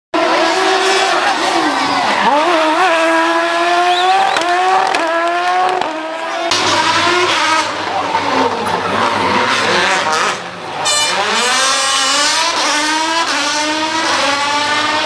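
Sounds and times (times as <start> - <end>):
rougher engine revving: 0.1 - 15.0
car engine revving: 0.2 - 15.0.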